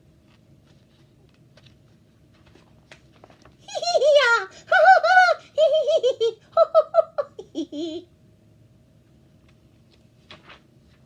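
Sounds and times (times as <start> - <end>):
woman giggling and laughing: 3.7 - 8.1.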